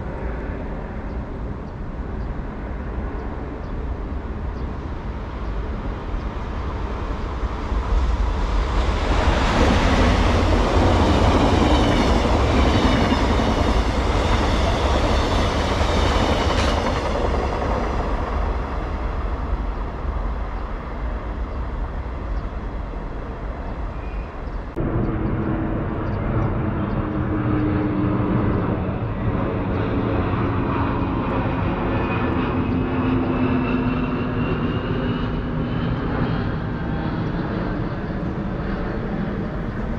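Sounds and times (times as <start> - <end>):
train passing: 0.0 - 39.9
train running with humming tones: 0.0 - 39.9.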